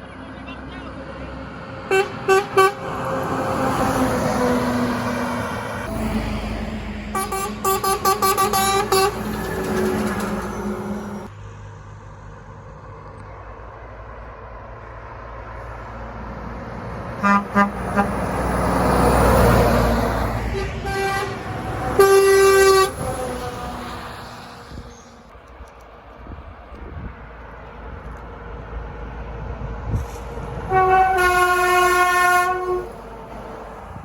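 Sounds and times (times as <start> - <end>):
passing traffic rushing: 0.0 - 34.0
truck horn blasts: 1.9 - 3.1, 7.1 - 9.4, 17.2 - 18.4, 20.4 - 23.4, 30.7 - 33.0.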